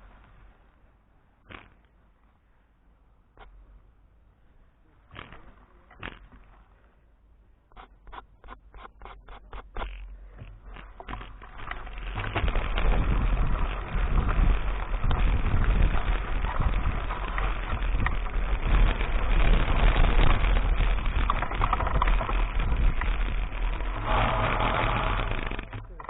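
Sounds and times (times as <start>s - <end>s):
bike tyre noise on dirt: 0.0s - 7.1s, 7.8s - 26.0s
wind rumbling on microphone: 7.7s - 26.0s
bike rattling: 7.8s - 26.0s.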